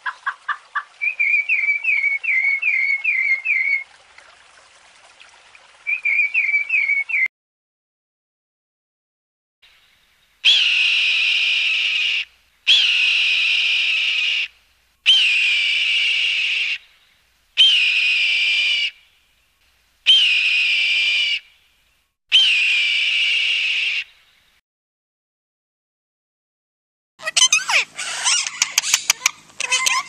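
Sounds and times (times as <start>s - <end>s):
bird of prey screaming: 10.4s - 14.5s, 15.1s - 16.8s, 17.6s - 19.0s, 20.1s - 21.5s, 22.3s - 24.2s, 27.2s - 30.0s.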